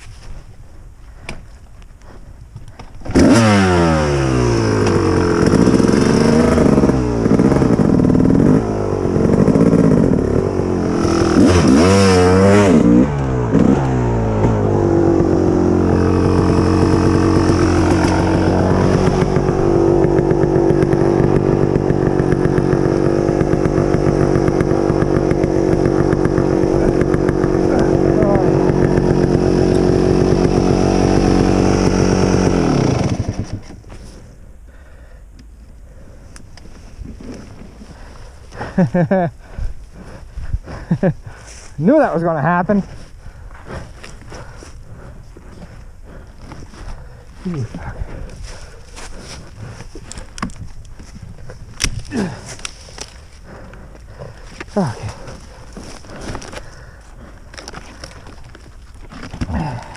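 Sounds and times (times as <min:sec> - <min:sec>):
dirt bike engine revving: 0:03.0 - 0:34.3, 0:51.0 - 0:58.3, 0:59.4 - 0:59.9.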